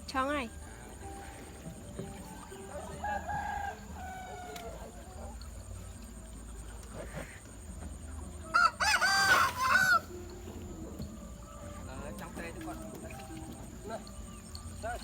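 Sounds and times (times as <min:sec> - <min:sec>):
chickens calling: 0:00.7 - 0:06.2, 0:08.3 - 0:15.0
rooster crowing: 0:02.4 - 0:05.1, 0:08.4 - 0:10.2.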